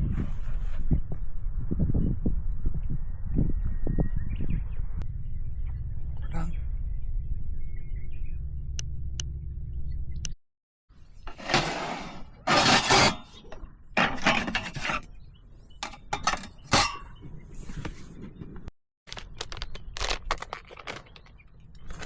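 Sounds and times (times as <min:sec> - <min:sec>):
low steady rumble: 0:01.3 - 0:10.4
tableware clattering and clinking: 0:11.3 - 0:13.4, 0:14.0 - 0:15.1, 0:15.8 - 0:17.2.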